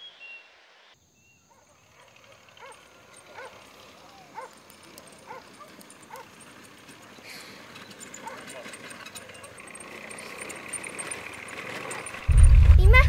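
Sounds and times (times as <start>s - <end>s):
faint dog barking: 1.5s - 3.6s, 4.2s - 6.4s, 8.2s - 8.8s.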